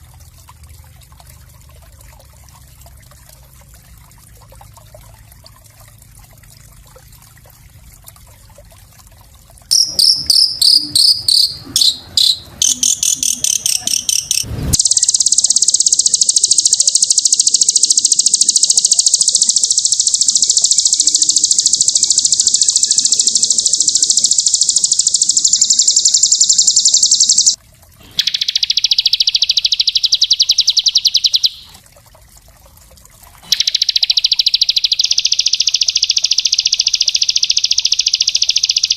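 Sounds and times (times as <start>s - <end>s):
songbird trilling: 9.7s - 27.6s, 28.2s - 31.7s, 33.5s - 38.9s.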